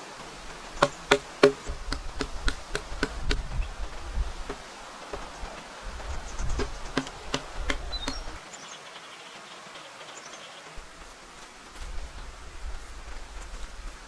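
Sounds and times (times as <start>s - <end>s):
sharp knocks: 0.8s - 3.5s, 6.4s - 8.4s
faint high chirping: 5.1s - 9.3s.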